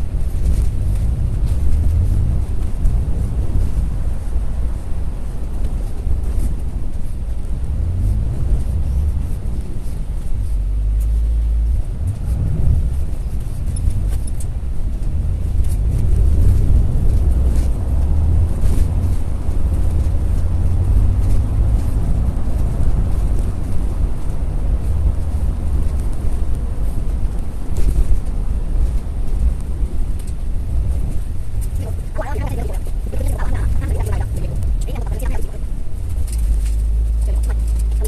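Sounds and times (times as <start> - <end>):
moving bus rumble: 0.0 - 38.0.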